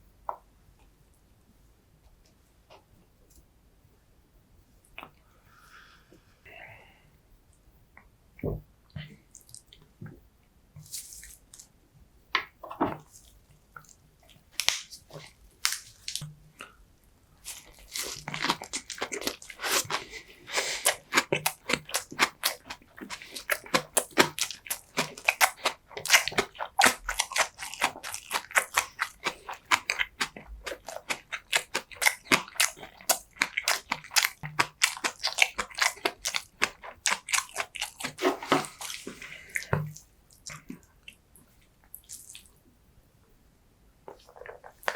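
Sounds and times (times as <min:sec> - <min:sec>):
person chewing: 0:12.7 - 0:16.8, 0:17.4 - 0:41.2, 0:41.9 - 0:42.6, 0:44.1 - 0:44.9.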